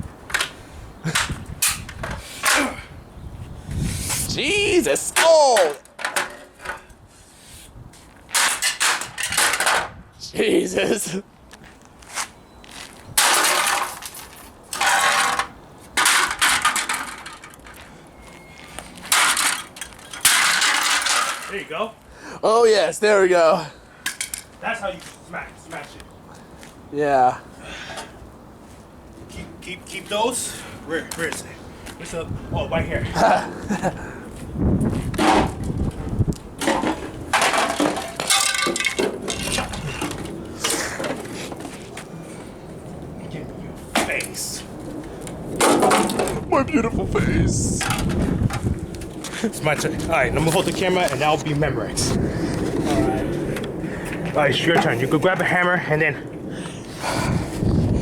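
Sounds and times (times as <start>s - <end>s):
speaker being smashed: 8.3s - 10.0s, 13.2s - 17.8s, 19.0s - 21.6s, 36.6s - 40.3s, 45.6s - 46.4s
clatter of breaking pieces: 13.2s - 17.8s, 19.1s - 21.6s, 36.6s - 40.2s.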